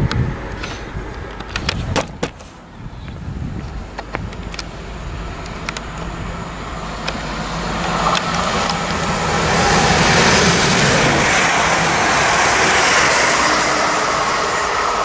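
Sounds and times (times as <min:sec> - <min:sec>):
electric train rumble: 0:00.0 - 0:15.0
steady low hum: 0:00.0 - 0:15.0
sharp clicks: 0:05.4 - 0:06.1.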